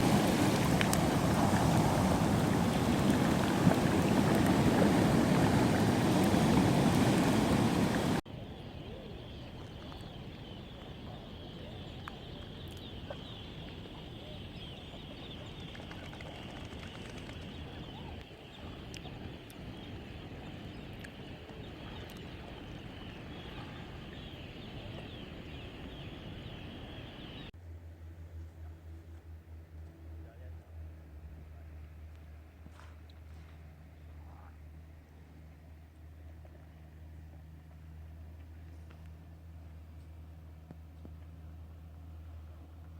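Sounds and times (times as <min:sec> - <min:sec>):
flock of birds chirping: 0:02.2 - 0:27.5.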